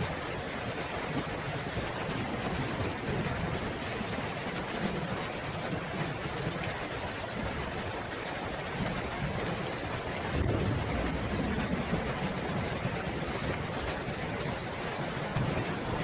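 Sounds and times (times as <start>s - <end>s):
steady rain hiss: 0.0s - 16.0s
distant thunder rumbling: 10.2s - 16.0s.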